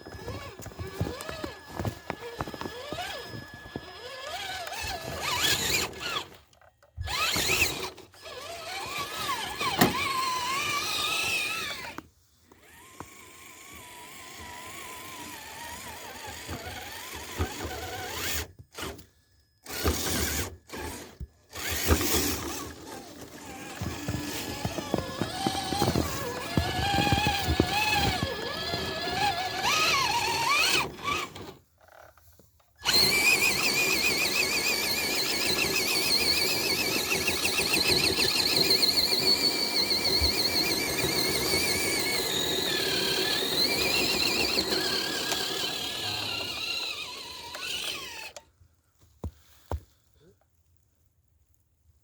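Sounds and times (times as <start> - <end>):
electric motor whining: 0.0 - 6.4, 7.0 - 12.0, 19.6 - 31.6, 32.8 - 48.4.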